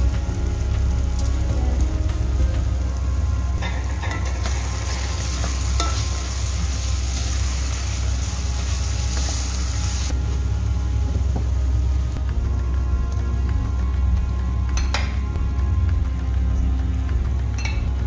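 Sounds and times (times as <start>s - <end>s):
onions sizzling in oil: 0.0s - 12.2s
steady low hum: 0.0s - 18.0s.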